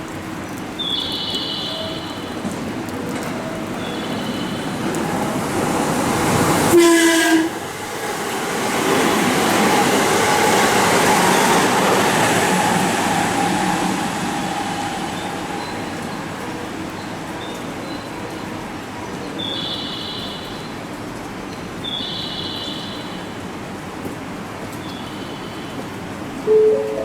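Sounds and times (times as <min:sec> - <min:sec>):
train cars rushing by: 0:00.0 - 0:19.0
train horn blast: 0:06.7 - 0:07.8, 0:26.4 - 0:27.0.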